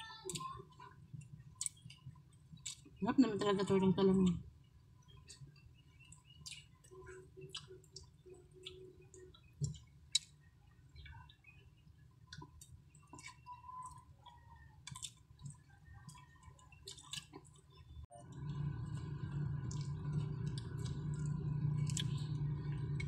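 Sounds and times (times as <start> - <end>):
people chewing soft food: 0.0 - 23.0
wet clicks and smacks: 1.2 - 3.0, 5.0 - 11.2, 12.3 - 17.8.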